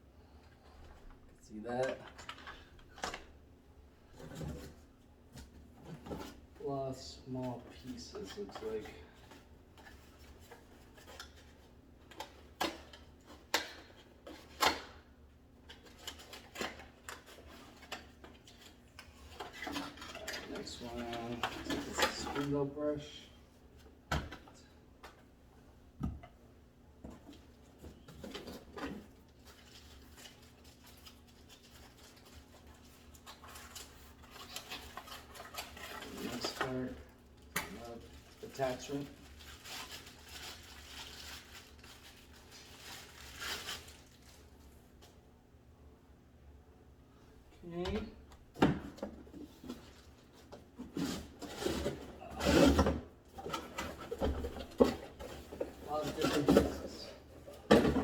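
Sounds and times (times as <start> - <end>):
crinkly packaging rustling: 28.2 - 45.2
packaging rustling: 38.0 - 44.6.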